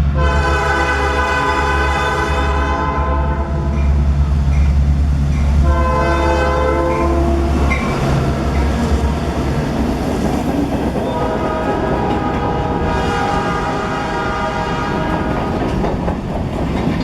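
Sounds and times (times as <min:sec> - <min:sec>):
locomotive and rolling train rumble: 0:00.0 - 0:17.0
train horn blasts: 0:00.1 - 0:03.8, 0:05.6 - 0:09.8, 0:11.0 - 0:15.6.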